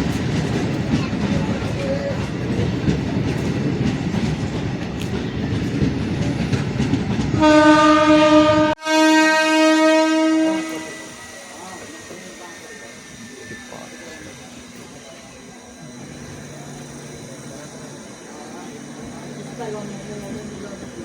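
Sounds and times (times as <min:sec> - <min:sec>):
train wheels clattering on rails: 0:00.0 - 0:08.4
train horn blasts: 0:07.4 - 0:11.2.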